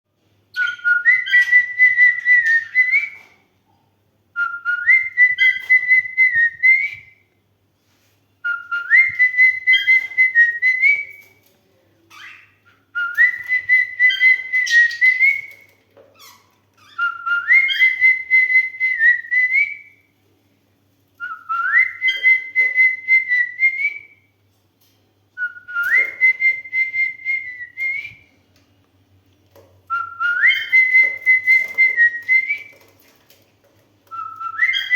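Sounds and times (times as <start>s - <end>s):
cockatiel whistling: 29.9s - 32.6s, 34.1s - 34.9s.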